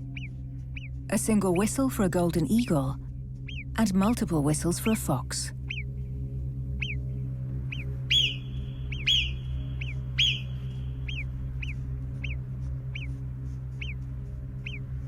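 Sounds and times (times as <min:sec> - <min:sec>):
low steady drone: 0:00.0 - 0:15.0
marmot alarm whistles: 0:08.1 - 0:12.4.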